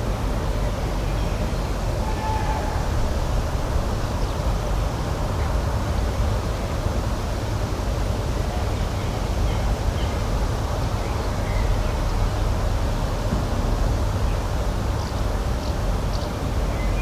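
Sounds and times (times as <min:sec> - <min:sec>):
steady low background noise: 0:00.0 - 0:17.0.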